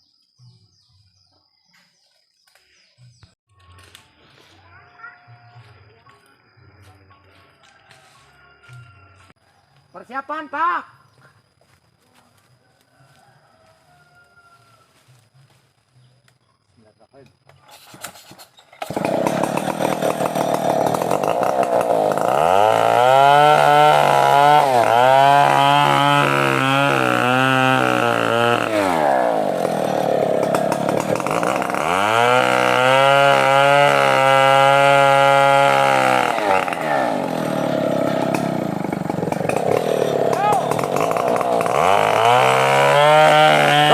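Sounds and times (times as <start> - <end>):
chainsaw cutting wood: 17.7 - 43.9.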